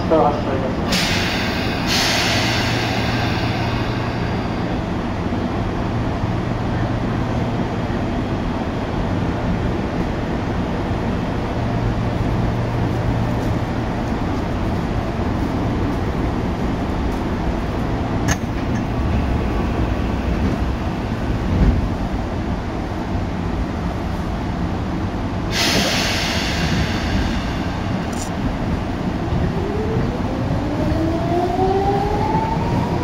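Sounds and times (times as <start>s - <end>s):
train wheels and motors rumbling: 0.0s - 33.0s
burst of hiss: 25.5s - 28.0s.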